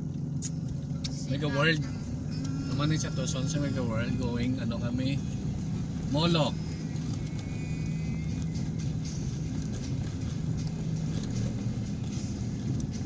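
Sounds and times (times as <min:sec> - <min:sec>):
vehicle engine and road hum: 0:00.0 - 0:13.0.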